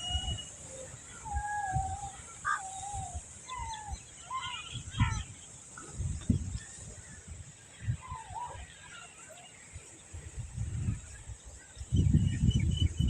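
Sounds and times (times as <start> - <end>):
chickens calling faintly: 0.0 - 10.2.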